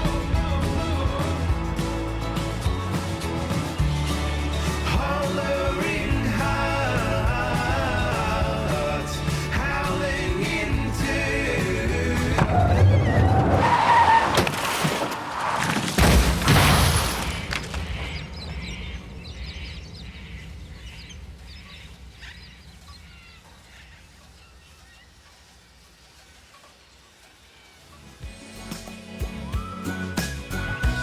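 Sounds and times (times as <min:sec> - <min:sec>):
rock song with singing: 0:00.0 - 0:13.1, 0:28.2 - 0:31.0
loud crash: 0:00.0 - 0:18.7
car tyres skidding: 0:00.0 - 0:19.2.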